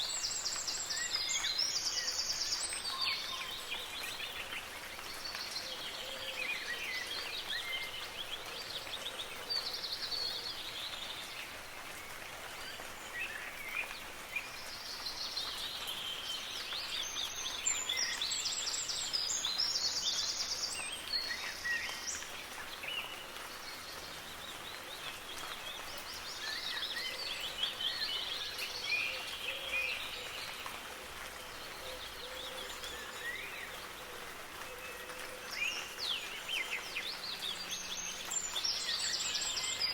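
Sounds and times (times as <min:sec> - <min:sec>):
light rain hissing: 0:00.0 - 0:39.9
songbirds chirping and singing: 0:14.4 - 0:39.9.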